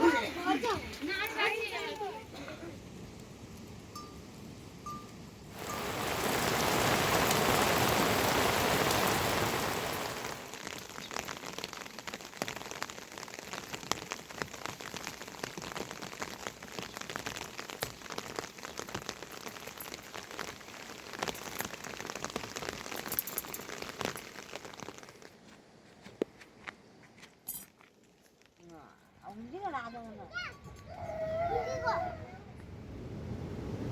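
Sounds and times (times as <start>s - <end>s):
rain falling: 0.0s - 25.6s
raindrops ticking on a surface: 0.2s - 25.5s.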